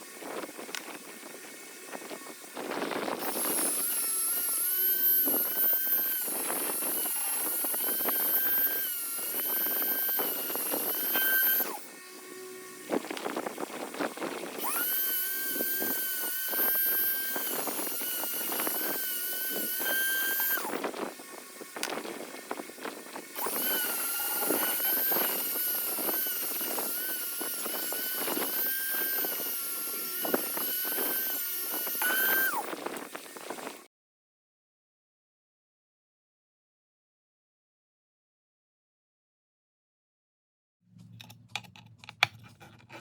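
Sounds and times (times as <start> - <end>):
rotary power tool whining: 0.0 - 33.9.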